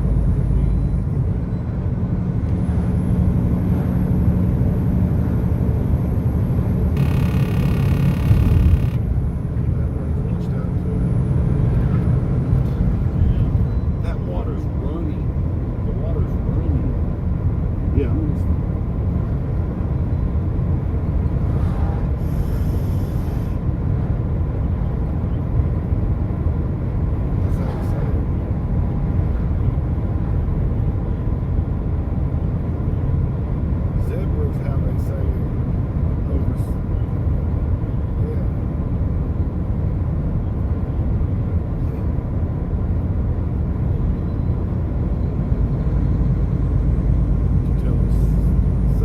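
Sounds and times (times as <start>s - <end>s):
car driving at highway speed: 0.0s - 49.0s
vehicle interior rumble: 0.0s - 49.0s
faint high whine: 7.0s - 9.0s.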